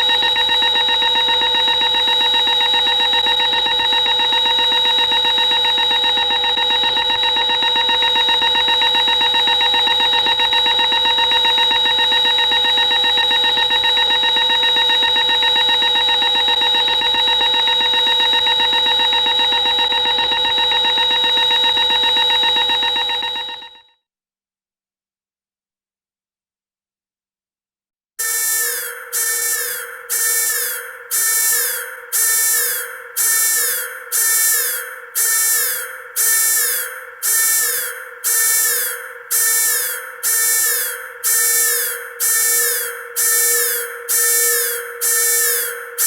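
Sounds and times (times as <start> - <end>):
buzzing horror drone: 28.3 - 46.0.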